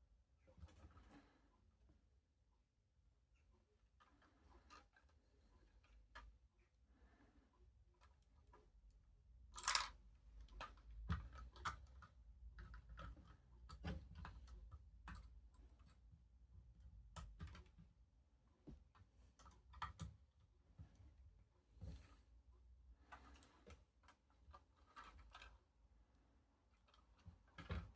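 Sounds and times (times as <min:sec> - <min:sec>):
plastic bricks clicking: 0:09.6 - 0:15.2.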